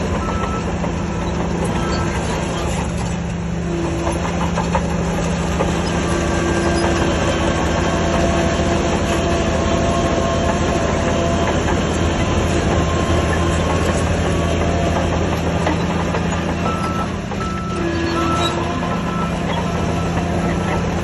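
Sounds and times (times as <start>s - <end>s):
bulldozer diesel engine droning: 0.0s - 21.0s
steel tracks clattering: 0.0s - 21.0s.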